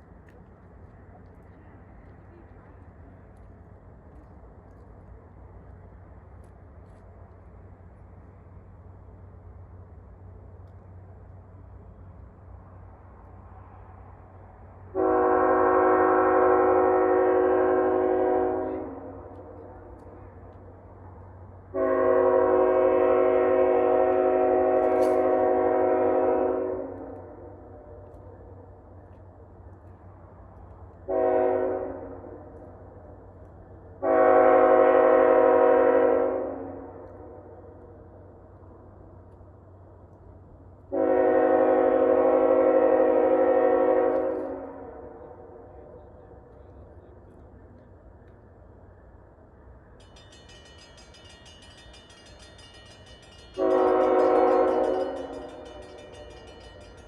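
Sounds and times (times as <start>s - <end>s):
train rumble: 0.0s - 57.0s
locomotive air horn chord: 14.9s - 19.1s, 21.7s - 27.2s, 31.1s - 32.2s, 34.0s - 37.0s, 40.9s - 45.0s, 53.6s - 55.8s.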